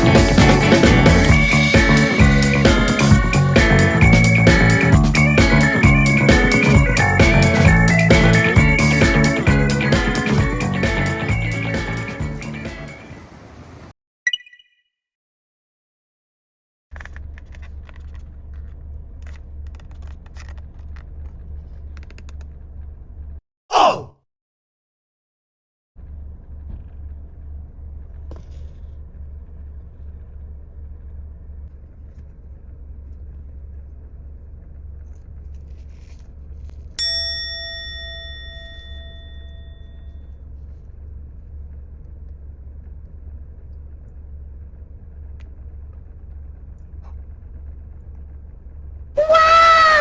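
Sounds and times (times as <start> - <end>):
bell-like ding: 14.3 - 14.8, 37.0 - 40.3.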